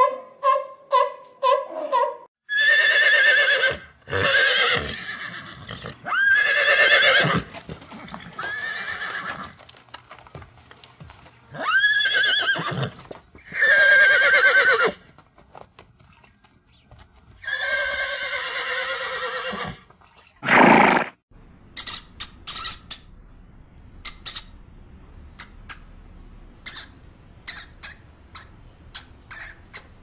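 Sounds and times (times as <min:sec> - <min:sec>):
horse neighing: 0:02.5 - 0:09.6, 0:11.6 - 0:15.0, 0:17.4 - 0:19.8, 0:20.4 - 0:21.2.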